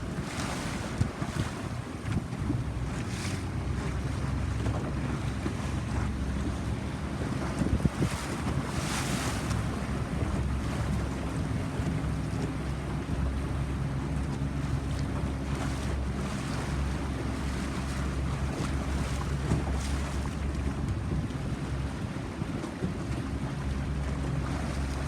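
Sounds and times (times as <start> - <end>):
wind buffeting microphone: 0.0 - 13.6
boat engine running: 0.0 - 25.0
water rushing past hull: 0.0 - 25.0.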